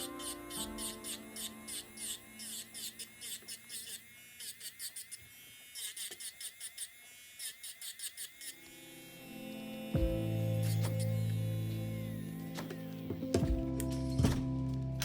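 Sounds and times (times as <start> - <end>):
drill bit rasping on nail: 0.0 - 9.3, 10.5 - 12.2
electric nail drill whining: 0.0 - 13.8.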